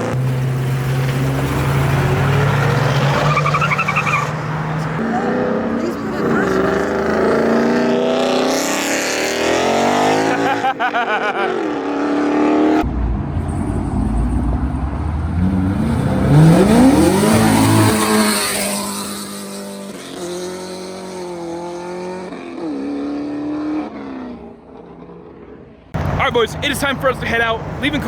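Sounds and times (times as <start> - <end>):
car engine revving: 0.0 - 28.0
loud rising pitch sweep: 11.6 - 22.2.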